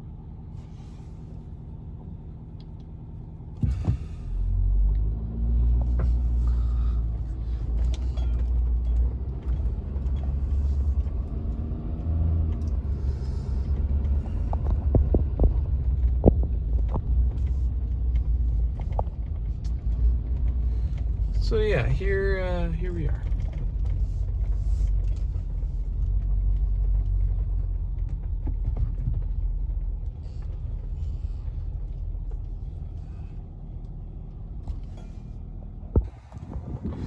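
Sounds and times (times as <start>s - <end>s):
car engine and road rumble: 0.0s - 37.0s.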